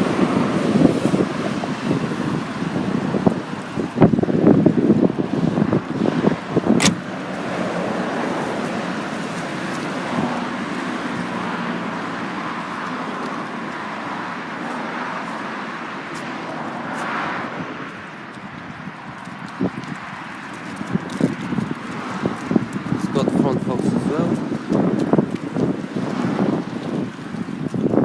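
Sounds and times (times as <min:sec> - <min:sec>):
road traffic noise: 0:00.0 - 0:28.0
sharp click: 0:06.8 - 0:07.0.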